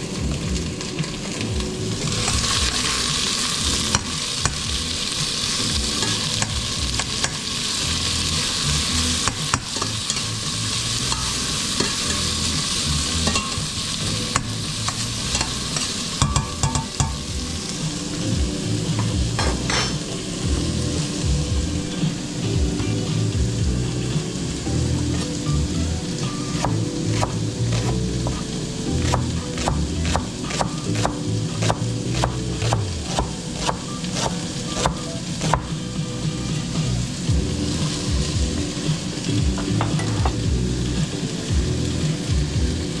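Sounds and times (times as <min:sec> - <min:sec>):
food sizzling in frying pan: 0:00.0 - 0:43.0
utensil knocking against pan: 0:16.2 - 0:17.2.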